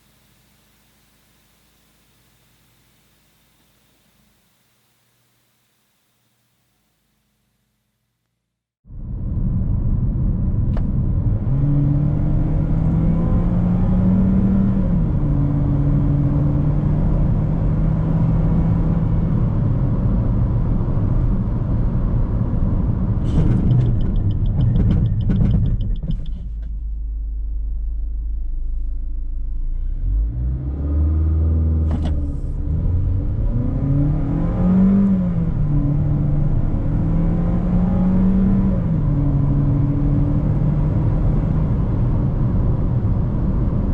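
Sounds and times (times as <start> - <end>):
car engine accelerating through gears: 10.5 - 26.2, 29.5 - 43.9.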